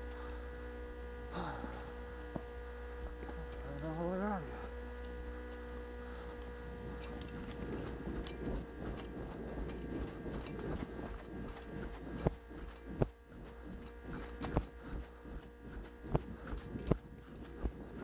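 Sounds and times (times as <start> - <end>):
electrical hum: 0.0 - 18.0
footsteps crunching: 1.7 - 18.0.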